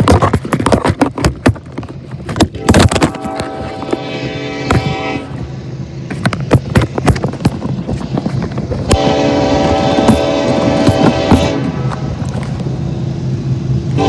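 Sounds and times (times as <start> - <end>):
passing train knocks and rumble: 1.9 - 14.0
locomotive air horn: 2.5 - 5.6, 8.9 - 12.2.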